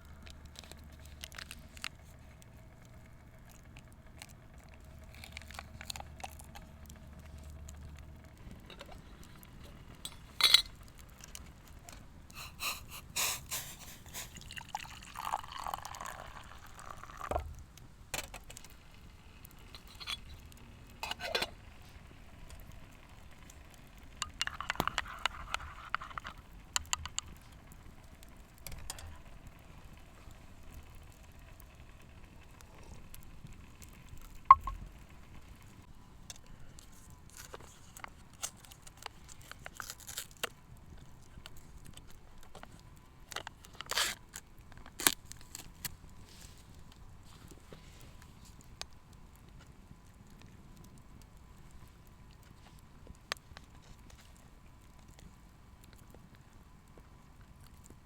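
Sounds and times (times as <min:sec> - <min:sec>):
liquid being poured: 0:14.0 - 0:17.5, 0:34.5 - 0:34.8.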